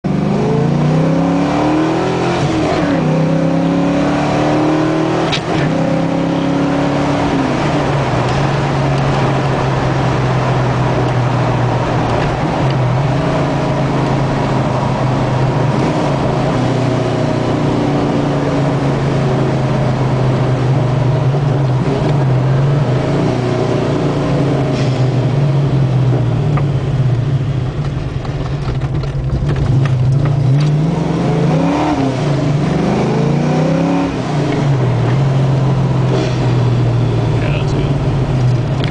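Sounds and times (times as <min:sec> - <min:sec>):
car engine accelerating: 0:00.1 - 0:38.9.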